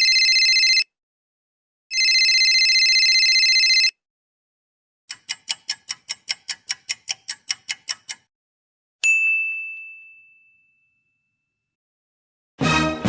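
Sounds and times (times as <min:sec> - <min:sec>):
quick even ticking: 0:05.1 - 0:08.3
bell ding: 0:09.0 - 0:11.6.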